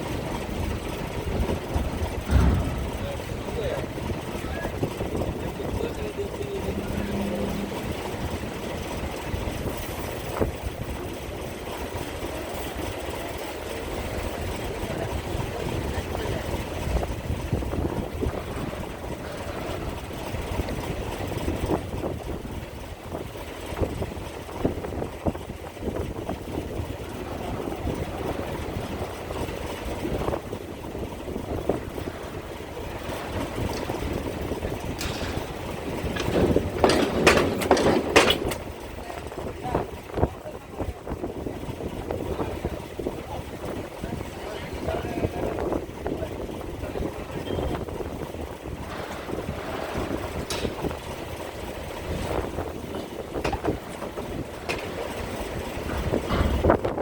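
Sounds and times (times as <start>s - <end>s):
wind buffeting microphone: 0.0s - 13.2s, 13.8s - 57.0s
ferry engines idling: 0.0s - 57.0s.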